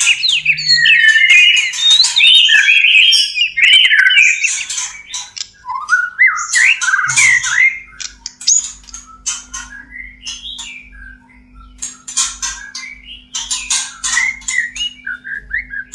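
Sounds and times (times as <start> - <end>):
sharp bird chips: 0.0 - 5.6, 6.4 - 10.9
bird whistled song: 0.0 - 15.9.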